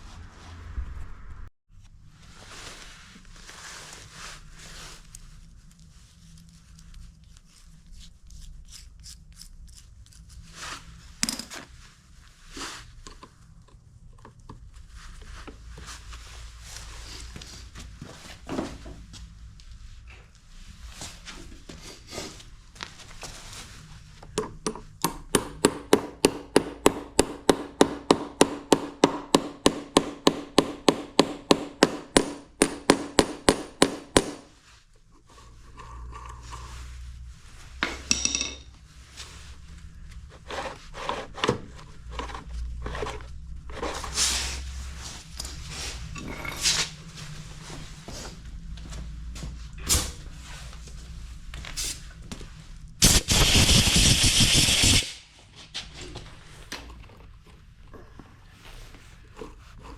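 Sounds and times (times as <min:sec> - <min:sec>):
hammer striking: 0:24.7 - 0:34.5
knocks and handling of parts: 0:37.8 - 0:38.8
loud hiss: 0:53.0 - 0:55.3.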